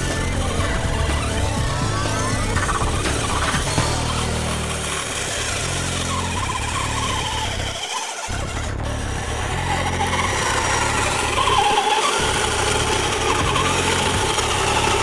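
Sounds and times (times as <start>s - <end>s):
low rumble: 0.0s - 11.6s
electric motor whining: 0.0s - 15.0s.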